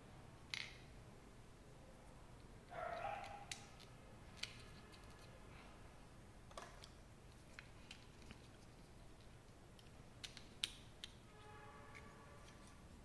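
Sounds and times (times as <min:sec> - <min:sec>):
small plastic clicks: 0:00.5 - 0:00.8, 0:03.2 - 0:05.3, 0:06.5 - 0:11.2.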